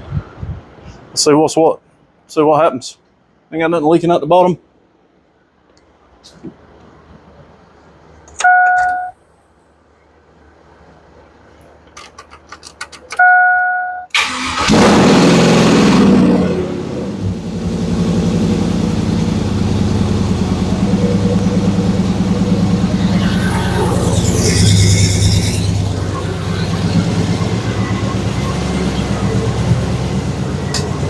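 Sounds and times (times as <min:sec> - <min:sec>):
dashboard warning chime: 0:08.4 - 0:09.2, 0:13.2 - 0:14.2, 0:26.0 - 0:31.0
engine cranking and idling: 0:14.1 - 0:31.0
clicks: 0:30.7 - 0:31.0.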